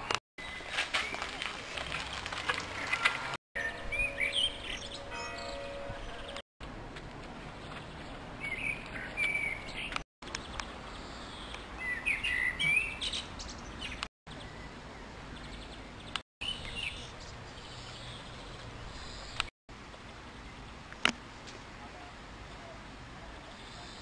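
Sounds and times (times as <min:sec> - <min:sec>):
outdoor background noise: 0:00.0 - 0:24.0
small birds chirping: 0:07.4 - 0:20.9.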